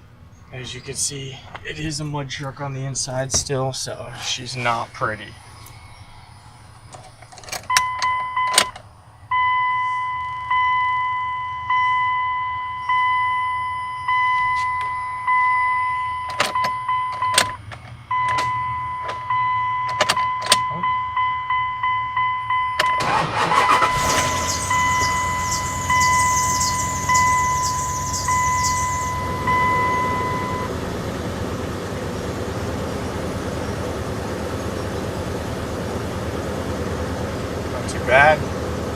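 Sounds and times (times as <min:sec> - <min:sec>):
dashboard warning chime: 0:07.7 - 0:08.7, 0:09.3 - 0:30.8
engine cranking and running: 0:22.8 - 0:38.9.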